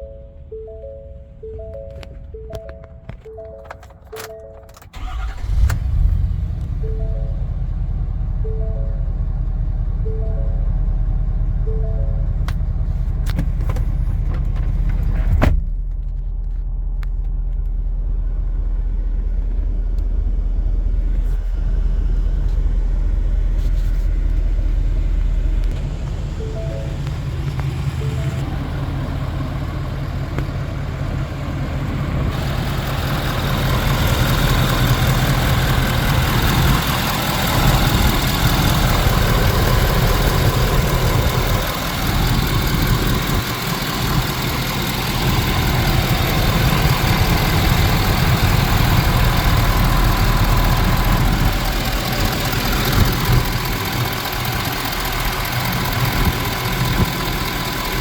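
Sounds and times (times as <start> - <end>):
diesel engine idling: 0.0 - 15.1, 16.7 - 58.0.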